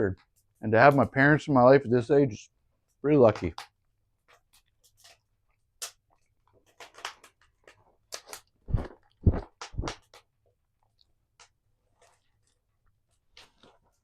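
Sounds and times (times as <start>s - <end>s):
person chewing crunchy food: 7.6s - 10.1s, 11.8s - 14.0s.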